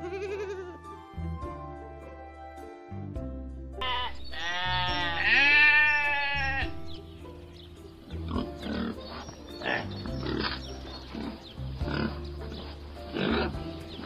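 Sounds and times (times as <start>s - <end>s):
background music held notes: 0.0s - 14.0s
sheep bleating: 3.8s - 6.8s
pigs grunting: 8.1s - 14.0s.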